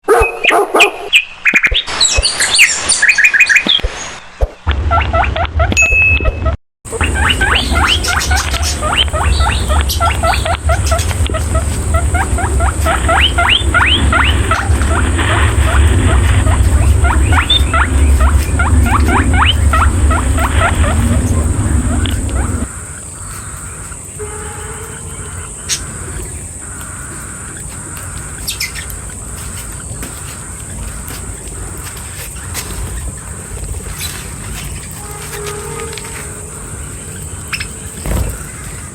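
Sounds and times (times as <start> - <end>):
birds chirping: 0.0 - 38.9
guinea pig squeaking: 4.9 - 23.9, 25.2 - 36.2
steady low hum: 6.3 - 38.9
steady high-pitched buzz: 6.9 - 38.9.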